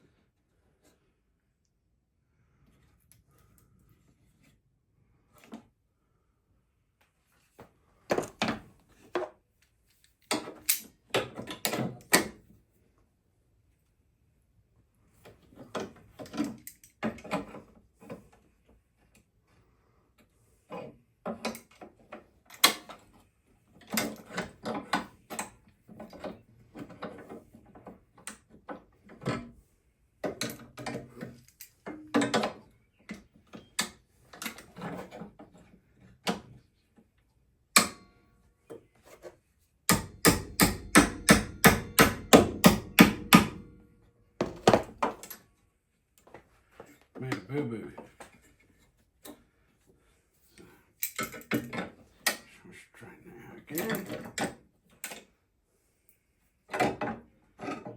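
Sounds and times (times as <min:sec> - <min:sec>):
knocks and clunks of metal tools: 0:30.2 - 0:35.2, 0:51.0 - 0:52.5.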